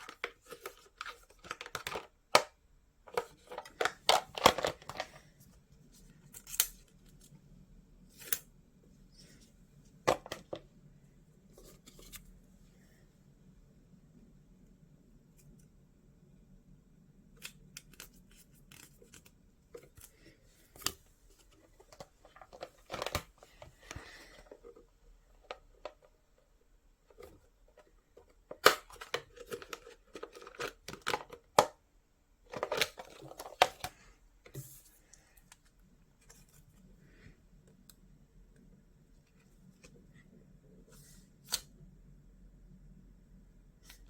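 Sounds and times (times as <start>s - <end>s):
rustling and crinkling: 17.9s - 31.6s, 32.4s - 37.3s.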